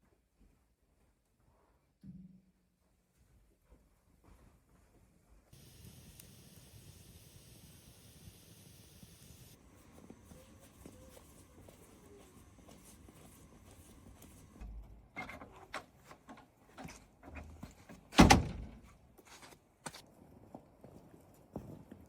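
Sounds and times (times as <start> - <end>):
loud thump: 18.2 - 18.8.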